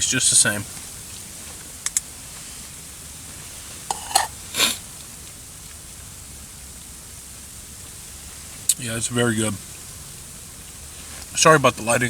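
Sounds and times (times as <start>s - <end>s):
steady hiss: 0.0s - 12.0s
utensil scraping pot: 3.7s - 4.8s
utensil clinking on metal pot: 3.9s - 4.8s.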